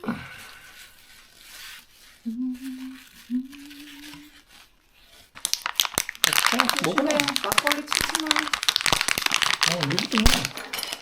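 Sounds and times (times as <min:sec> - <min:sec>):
plastic packaging crinkling: 0:05.3 - 0:10.9.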